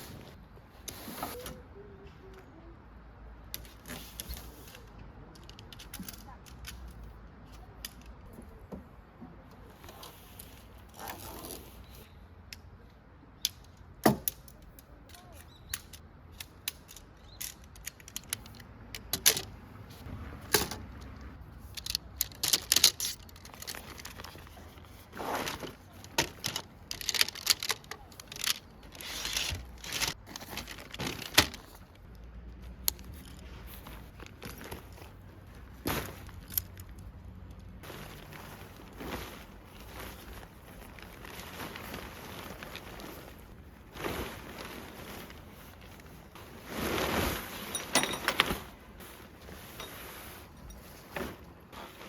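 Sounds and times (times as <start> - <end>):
small objects clicking and rustling: 3.5 - 8.3, 13.4 - 19.6, 20.5 - 35.2, 35.9 - 43.5.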